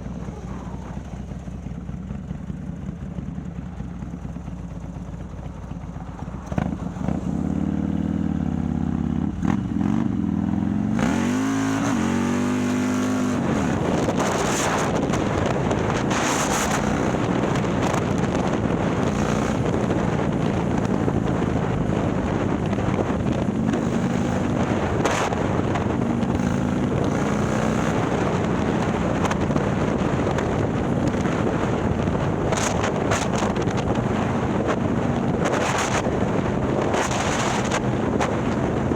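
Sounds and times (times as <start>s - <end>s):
motorcycle engine accelerating: 0.0s - 38.9s
rushing wind noise: 6.2s - 38.9s.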